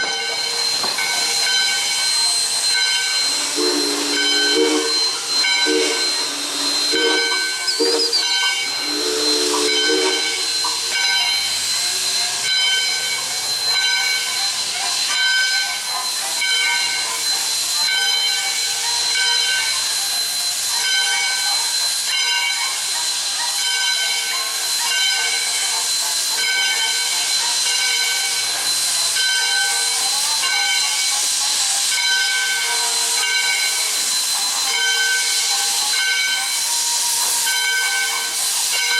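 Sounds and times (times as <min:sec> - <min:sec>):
pulsing steam hiss: 0:00.0 - 0:38.9
steam whistle blasts: 0:00.2 - 0:12.9.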